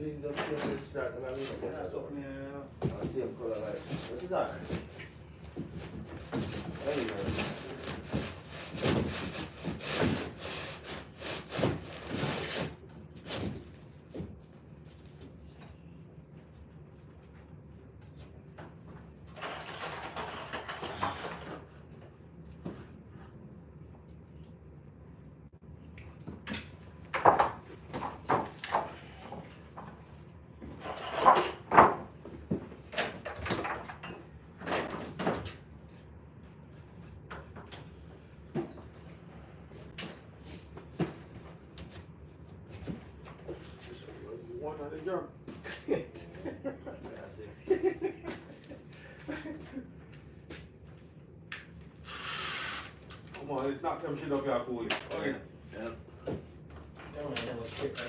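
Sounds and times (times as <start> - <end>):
handsaw cutting wood: 8.4 - 12.5.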